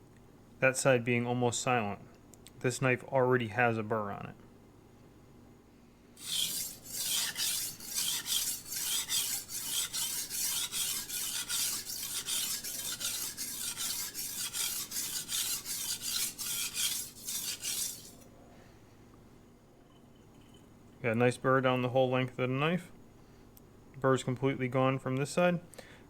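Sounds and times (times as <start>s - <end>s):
knife scraping on whetstone: 6.2s - 18.3s.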